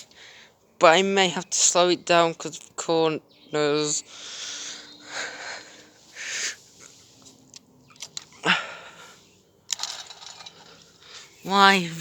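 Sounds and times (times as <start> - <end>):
light clicks: 7.5 - 8.4
toy train whirring on track: 9.7 - 10.9.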